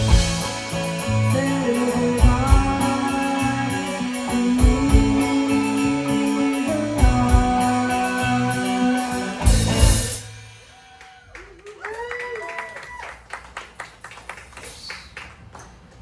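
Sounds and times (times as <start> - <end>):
bass line: 0.0 - 10.6
guitar chords and melody: 0.0 - 10.6
drum kit: 0.0 - 11.0.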